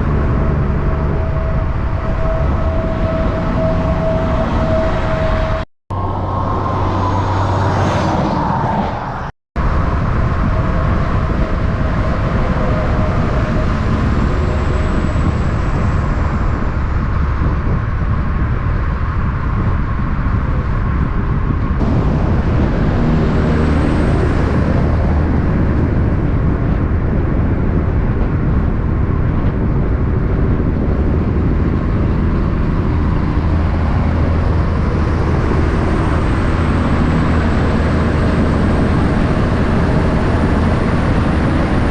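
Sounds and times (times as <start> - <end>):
heavy truck engines humming: 0.0 - 7.9, 21.8 - 41.9
tyre noise on road: 0.0 - 41.9.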